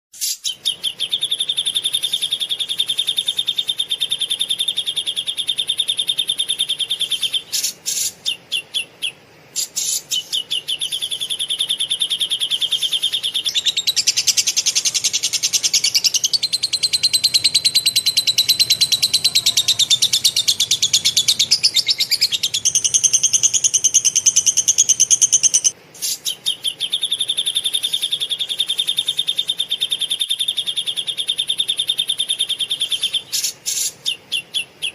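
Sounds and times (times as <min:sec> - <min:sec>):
birds chirping rapidly: 0:00.2 - 0:34.9.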